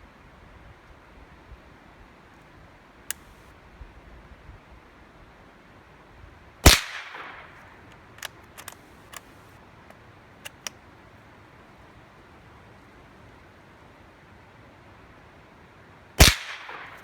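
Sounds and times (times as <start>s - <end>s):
gunshot echoing: 6.7s - 7.6s, 16.2s - 17.0s
faint sharp cracks: 6.7s - 10.8s, 16.2s - 17.0s.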